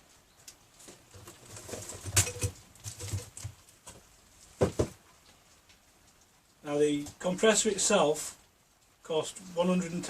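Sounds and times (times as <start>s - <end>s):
plastic clicks and rustles: 0.5s - 6.3s
items knocking on a bench: 4.6s - 5.0s.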